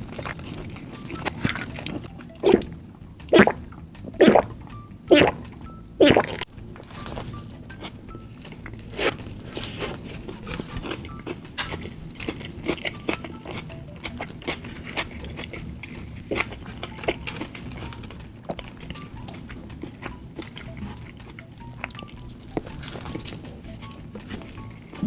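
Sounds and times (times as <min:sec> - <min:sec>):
chewing with crunches: 0:00.0 - 0:25.0
loud bite: 0:00.1 - 0:25.0.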